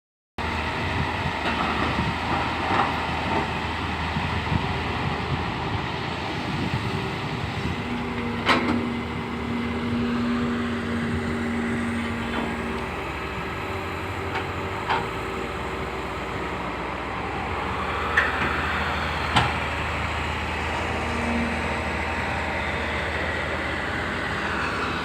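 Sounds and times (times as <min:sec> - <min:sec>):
excavator engine running: 0:00.4 - 0:25.0.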